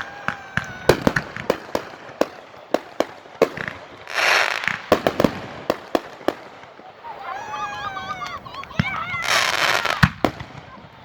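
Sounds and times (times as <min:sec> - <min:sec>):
firework hissing burst: 0:00.0 - 0:07.7
fireworks bangs and pops: 0:00.0 - 0:11.0.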